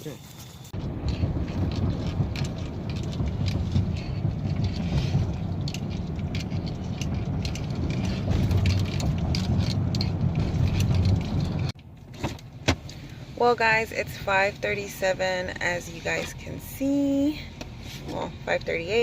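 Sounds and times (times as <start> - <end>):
road and engine rumble: 0.0 - 19.0
light clicks and rattles: 0.3 - 13.1.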